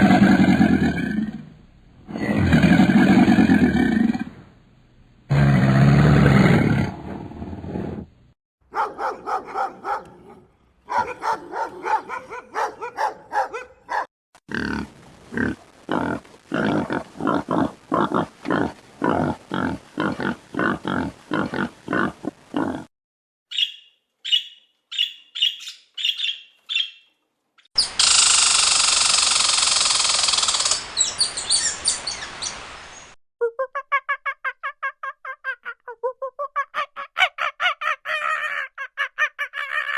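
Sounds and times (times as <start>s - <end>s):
loud hissing or roaring: 0.0s - 4.4s, 5.3s - 8.1s.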